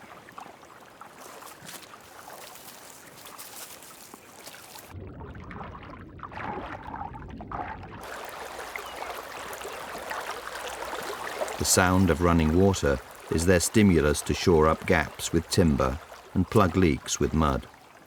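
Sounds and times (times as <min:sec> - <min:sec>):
water trickling and splashing: 0:00.0 - 0:18.0.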